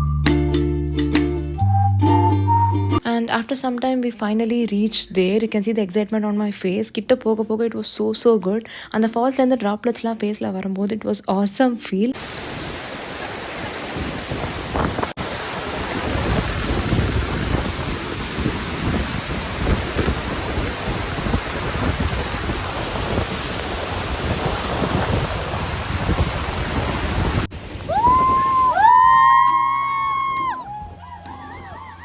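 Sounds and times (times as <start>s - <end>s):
music: 0.0s - 10.4s, 29.4s - 32.0s
waterfall rushing: 12.2s - 32.0s.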